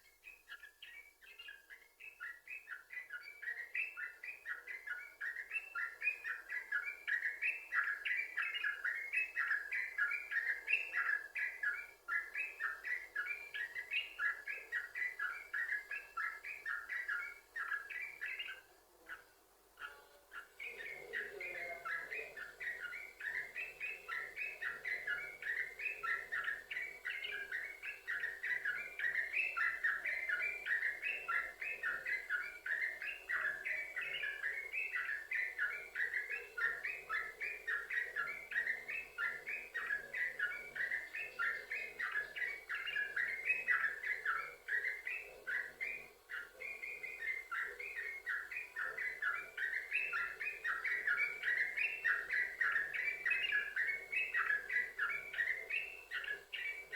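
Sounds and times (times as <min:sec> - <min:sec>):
bulbul singing: 0:19.8 - 0:56.9.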